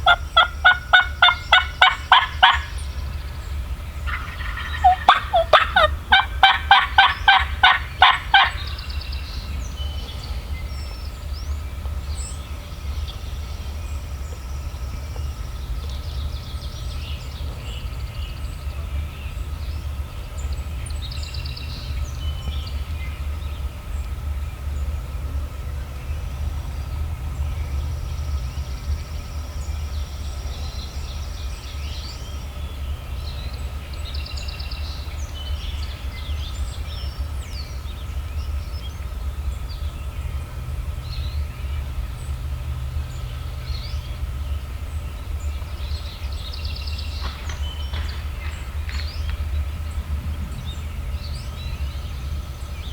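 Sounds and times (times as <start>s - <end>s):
turkey yelps: 0.0s - 2.8s, 4.1s - 8.7s
faint songbird notes: 0.0s - 52.9s
low rumble: 0.0s - 52.9s.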